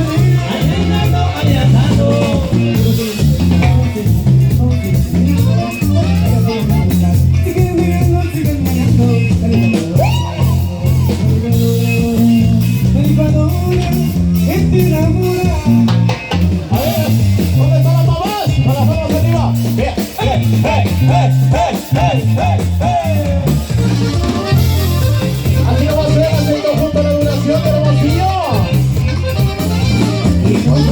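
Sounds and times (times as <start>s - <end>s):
bass line: 0.0s - 30.9s
drums: 0.0s - 30.9s
saxophone melody: 4.6s - 8.0s, 20.3s - 30.9s.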